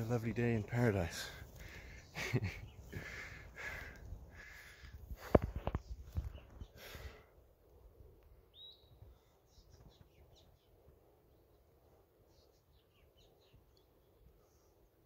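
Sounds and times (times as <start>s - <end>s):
faint bird calls: 1.2s - 7.3s.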